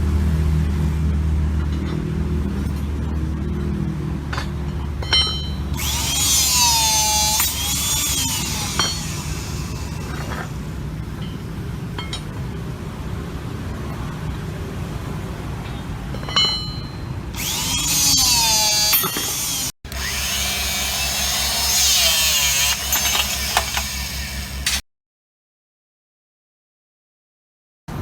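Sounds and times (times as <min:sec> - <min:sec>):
high-pitched grinding whine: 0:05.6 - 0:10.8, 0:17.4 - 0:24.8
electric motor low hum: 0:05.8 - 0:10.7, 0:17.4 - 0:24.8.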